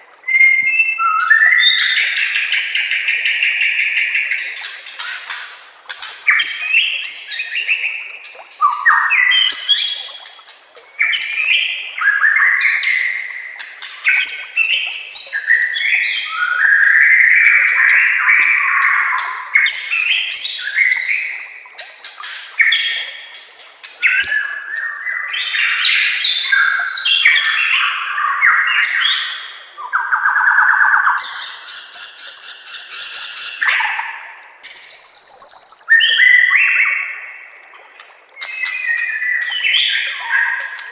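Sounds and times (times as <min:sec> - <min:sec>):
bird singing varied phrases: 0:06.3 - 0:10.1.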